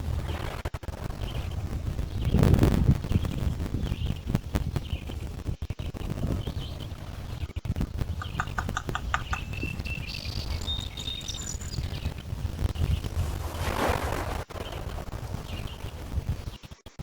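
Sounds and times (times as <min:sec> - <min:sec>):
wind rumble on microphone: 0:00.0 - 0:17.0
bird chirping and whistling: 0:08.2 - 0:12.2.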